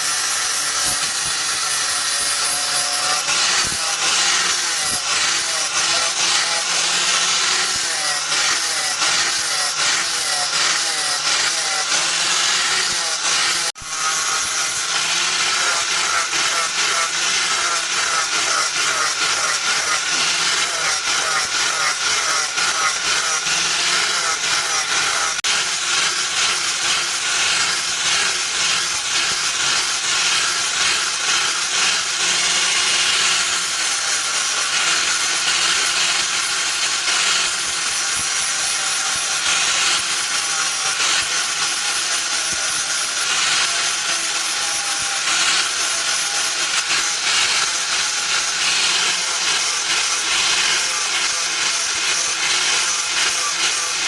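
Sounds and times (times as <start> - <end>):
power grinder rasping hiss: 0.0 - 54.0.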